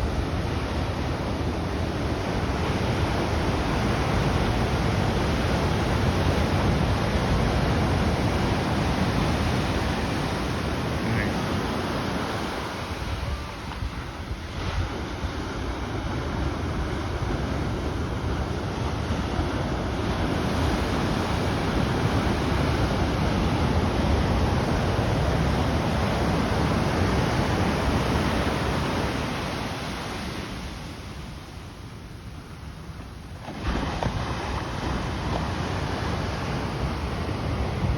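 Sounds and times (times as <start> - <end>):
ocean surf breaking: 0.0 - 37.9
wind buffeting microphone: 11.5 - 29.2.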